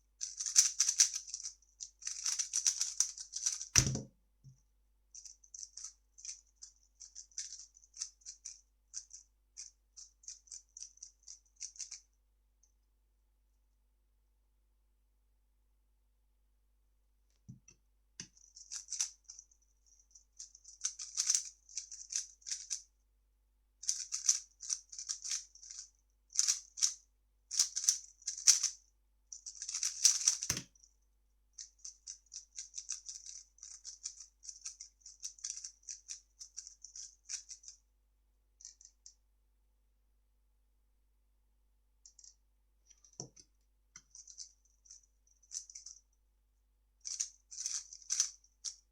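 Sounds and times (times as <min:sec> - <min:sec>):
puzzle cube clicking and rattling: 0:00.2 - 0:04.0, 0:05.2 - 0:12.0, 0:18.3 - 0:19.4, 0:20.4 - 0:22.8, 0:23.8 - 0:28.8, 0:29.4 - 0:30.8, 0:31.6 - 0:37.8, 0:44.0 - 0:46.0, 0:47.0 - 0:48.8.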